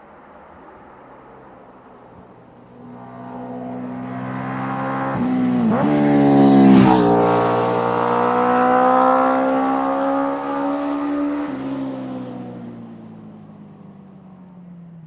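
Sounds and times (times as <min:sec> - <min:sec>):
motorcycle accelerating away: 0:02.9 - 0:12.8.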